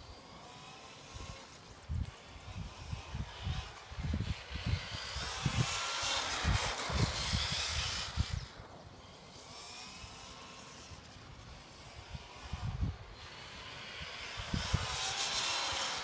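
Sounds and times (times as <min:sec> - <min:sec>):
electric motor whining: 0:00.0 - 0:16.0
wind buffeting microphone: 0:01.1 - 0:08.6, 0:12.0 - 0:15.9.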